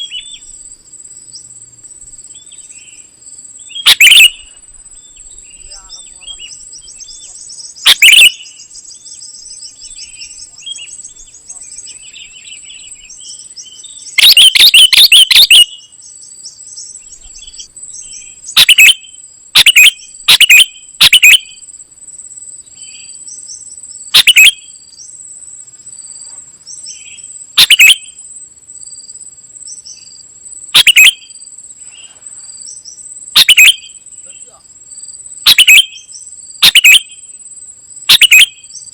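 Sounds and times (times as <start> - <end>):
bird trill: 0.0 - 1.5, 2.2 - 21.8, 22.6 - 25.2, 25.8 - 28.3, 29.6 - 38.9
bird singing sharp notes: 2.4 - 16.1, 16.8 - 21.7, 24.2 - 24.8, 26.9 - 28.2, 30.8 - 31.3, 33.4 - 34.6, 35.4 - 37.4, 38.1 - 38.9.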